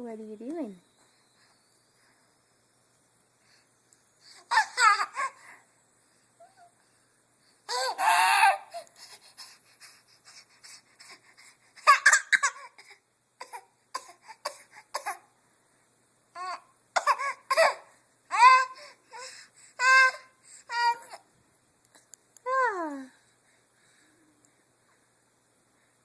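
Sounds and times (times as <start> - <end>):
baby squealing: 7.7 - 8.8, 19.8 - 21.2.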